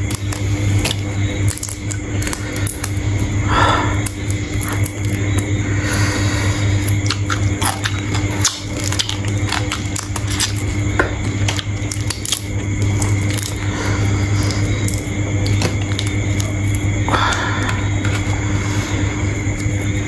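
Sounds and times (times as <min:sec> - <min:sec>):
shrimp shells crunching: 0:00.0 - 0:03.0, 0:04.0 - 0:05.5, 0:06.8 - 0:13.7, 0:14.4 - 0:16.9
steady low hum: 0:00.0 - 0:20.0
squishy chewing: 0:06.8 - 0:17.0.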